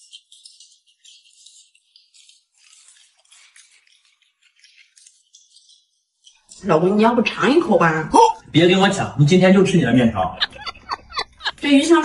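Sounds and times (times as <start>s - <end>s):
crunching and chewing: 0.0s - 6.7s.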